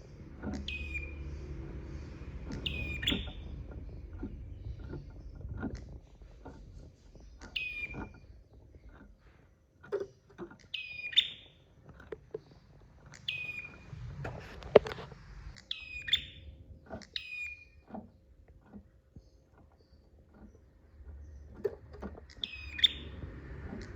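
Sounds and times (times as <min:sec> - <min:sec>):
bird chirping: 0:00.0 - 0:09.4, 0:10.5 - 0:14.1, 0:15.5 - 0:23.9
low knocks and taps: 0:11.8 - 0:15.2, 0:17.8 - 0:23.9.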